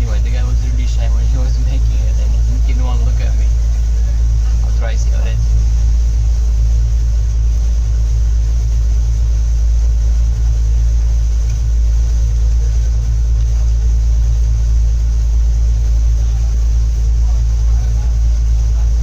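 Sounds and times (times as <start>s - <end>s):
train rumbling inside carriage: 0.0s - 6.6s.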